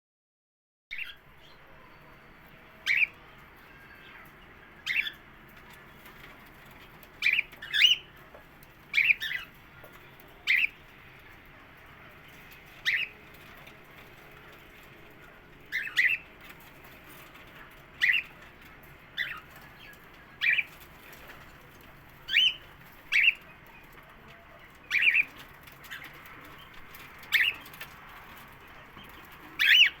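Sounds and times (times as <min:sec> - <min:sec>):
cockatiel chirping: 0:02.8 - 0:05.2, 0:07.2 - 0:08.1, 0:08.9 - 0:09.5, 0:10.4 - 0:10.8, 0:12.8 - 0:13.2, 0:15.7 - 0:16.3, 0:18.0 - 0:18.4, 0:19.2 - 0:20.8, 0:22.2 - 0:23.4, 0:24.8 - 0:26.1, 0:26.7 - 0:27.7, 0:29.6 - 0:30.0.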